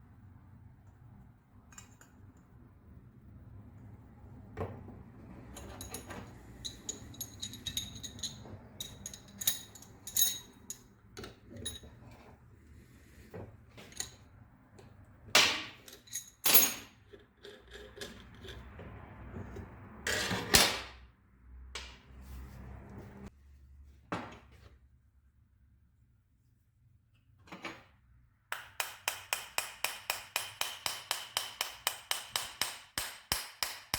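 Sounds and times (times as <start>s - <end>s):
small metallic clinks and knocks: 5.5s - 12.2s, 15.8s - 18.7s.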